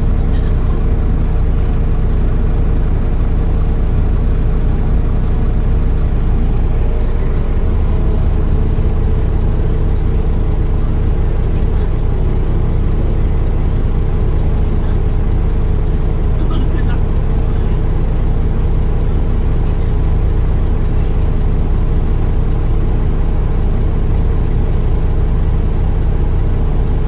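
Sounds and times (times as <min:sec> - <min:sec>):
bus diesel engine running: 0:00.0 - 0:27.0.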